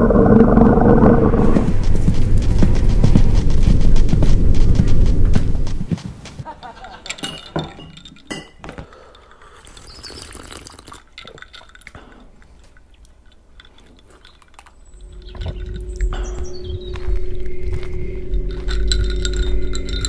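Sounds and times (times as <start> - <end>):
low rumble and hum: 0.0 - 5.9, 14.8 - 20.0
glass bottles clinking: 6.6 - 12.3, 18.5 - 20.0
liquid sloshing and pouring: 9.6 - 15.9.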